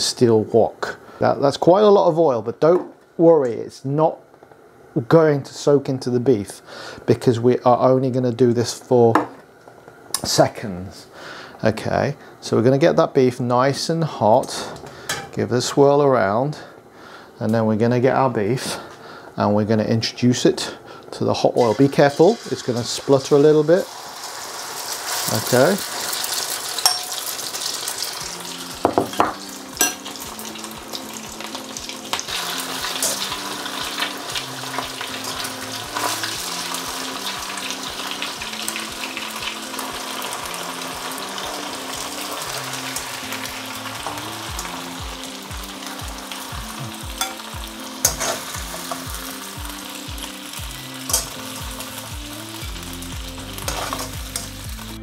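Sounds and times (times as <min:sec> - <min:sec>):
meat sizzling in hot oil: 0:21.4 - 0:55.0
metal utensil clinking on wok: 0:26.8 - 0:27.3, 0:29.8 - 0:30.1, 0:47.2 - 0:47.4, 0:48.0 - 0:48.4, 0:51.1 - 0:51.4.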